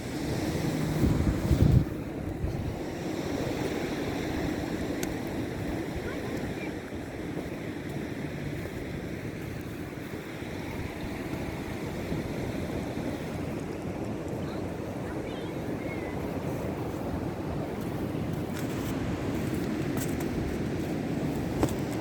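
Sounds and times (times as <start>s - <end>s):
wind: 0.0s - 22.0s
wind buffeting microphone: 0.0s - 22.0s.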